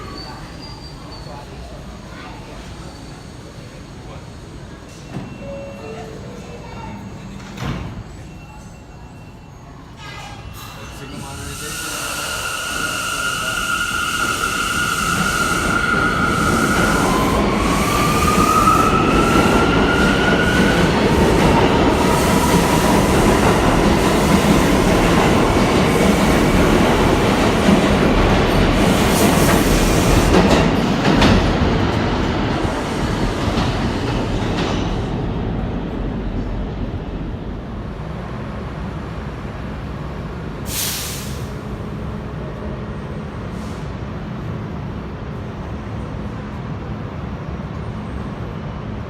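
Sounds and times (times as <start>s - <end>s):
train wheels rumbling and clattering: 10.1s - 49.0s.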